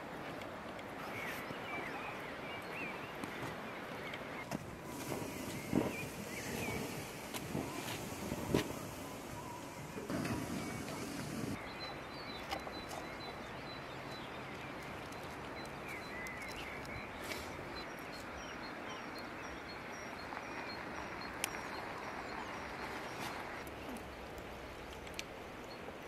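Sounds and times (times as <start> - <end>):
steady hiss: 4.5 - 11.6.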